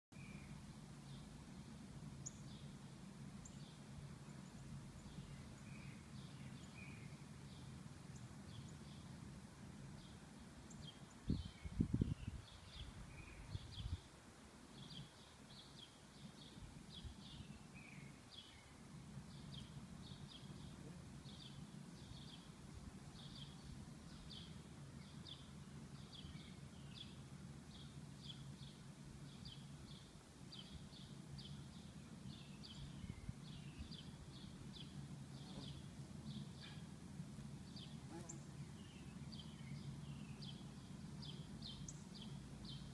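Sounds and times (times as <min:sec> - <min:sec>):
low outdoor hum: 0:00.1 - 0:42.9
small bird chirping: 0:00.2 - 0:02.8, 0:37.6 - 0:42.9.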